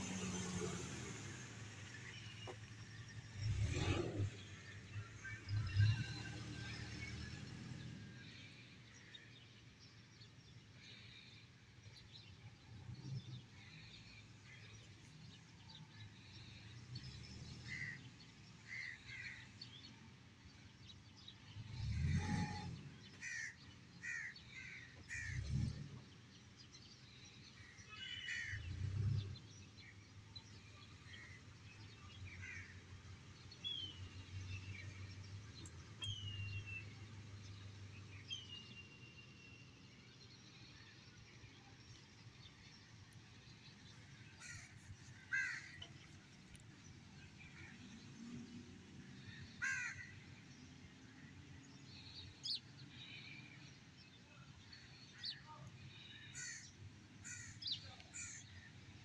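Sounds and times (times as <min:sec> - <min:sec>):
crows cawing: 0:23.2 - 0:25.4, 0:28.0 - 0:28.6, 0:32.4 - 0:32.8, 0:44.4 - 0:44.7, 0:45.3 - 0:45.9, 0:49.6 - 0:50.2, 0:56.3 - 0:58.4.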